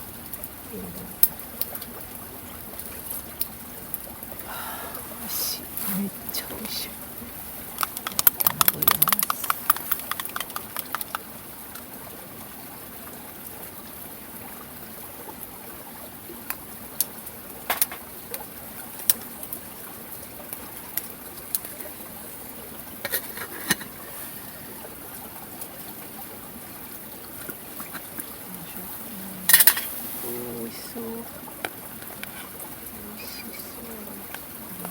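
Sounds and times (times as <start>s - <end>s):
pot of porridge hissing: 4.4s - 11.0s, 23.0s - 25.0s, 28.9s - 30.9s
sharp clicks: 7.8s - 11.2s.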